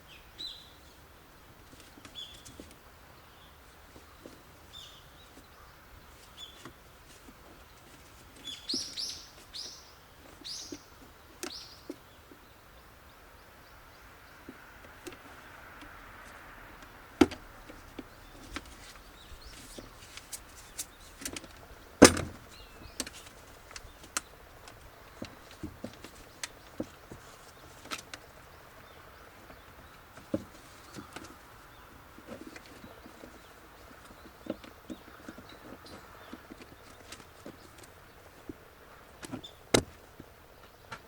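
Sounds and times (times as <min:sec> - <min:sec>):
sharp clicks and knocks of hand work: 0:14.5 - 0:28.3.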